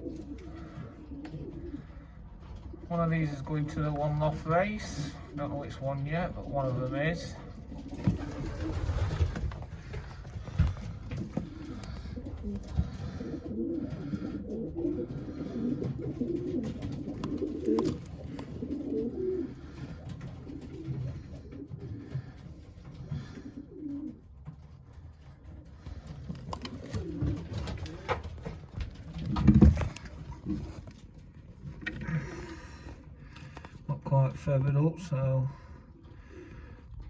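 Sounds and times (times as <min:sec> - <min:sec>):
pigeons cooing: 0:00.0 - 0:33.9, 0:35.2 - 0:37.0.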